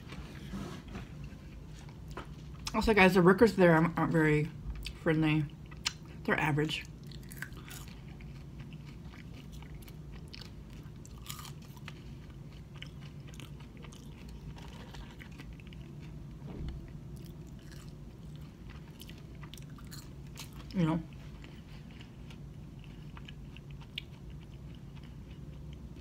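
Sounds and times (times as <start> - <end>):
chewing and crunching: 0.0 - 2.9, 4.4 - 26.0
steady low hum: 0.0 - 26.0.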